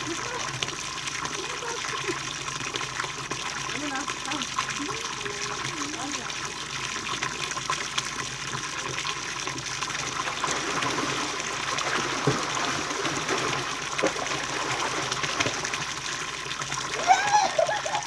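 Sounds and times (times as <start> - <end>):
stream water flowing: 0.0 - 18.0.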